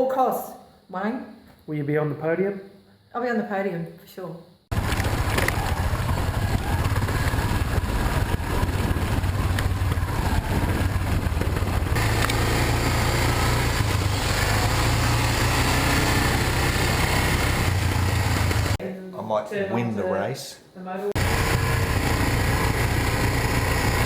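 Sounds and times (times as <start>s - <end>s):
motorcycle engine running: 4.7s - 18.8s, 21.2s - 24.0s.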